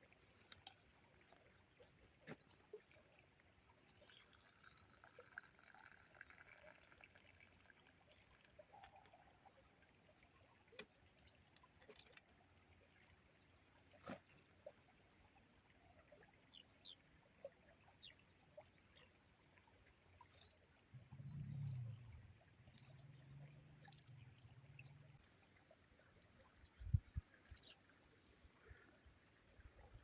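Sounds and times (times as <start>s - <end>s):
faint bird chirps: 20.2s - 28.0s.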